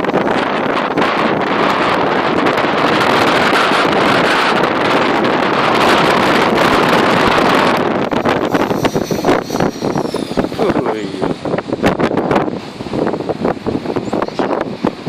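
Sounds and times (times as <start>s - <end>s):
wind buffeting microphone: 0.0s - 15.0s
electric rc helicopter flying: 6.5s - 11.6s.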